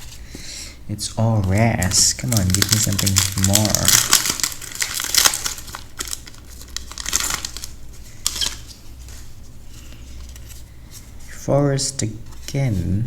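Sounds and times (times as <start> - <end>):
foil wrapper tearing and crinkling: 1.4 - 8.8.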